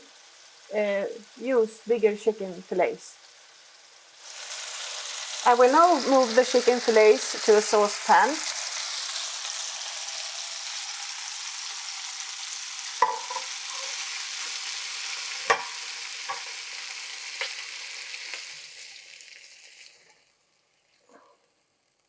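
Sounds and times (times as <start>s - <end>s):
chicken sizzling in a frying pan: 0.0s - 22.0s
utensil knocking against pan: 13.0s - 13.5s.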